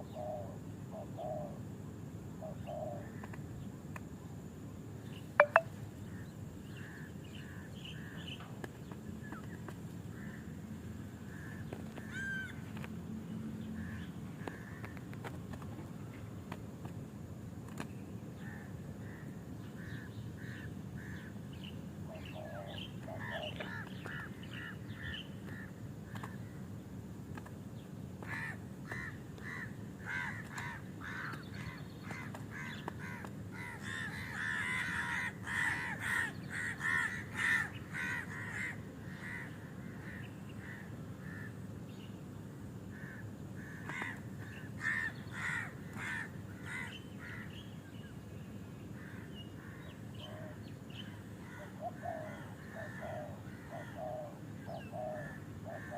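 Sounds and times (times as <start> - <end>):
low outdoor background: 0.0 - 55.9
bird harsh repeated calls: 5.4 - 6.2, 18.4 - 26.7, 28.2 - 41.6, 42.9 - 47.8, 49.0 - 55.9.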